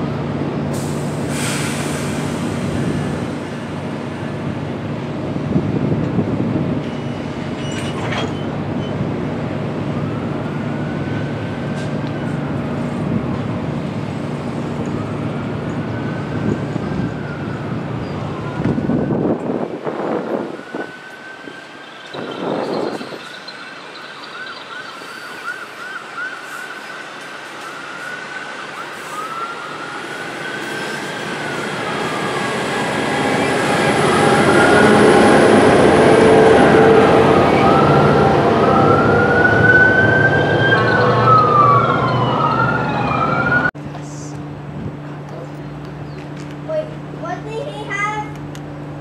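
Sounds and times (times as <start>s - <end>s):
train rumbling past: 0.0s - 49.0s
emergency siren yelping and wailing: 9.7s - 13.3s, 14.4s - 43.8s.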